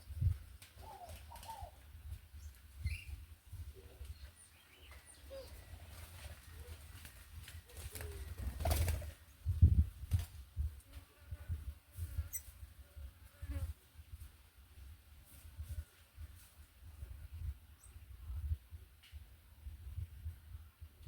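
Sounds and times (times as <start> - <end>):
small birds chirping: 0.0 - 6.8
dove cooing: 0.8 - 1.8, 5.2 - 7.0, 7.6 - 9.0
wings rustling: 4.8 - 9.2.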